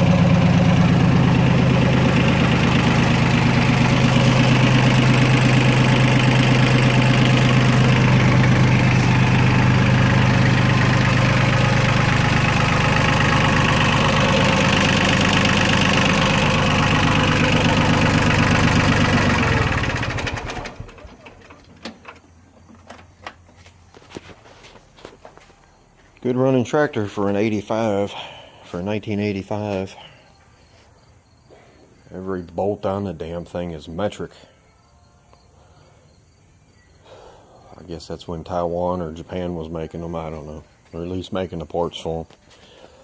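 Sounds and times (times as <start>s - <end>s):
diesel tractor engine running: 0.0s - 28.4s.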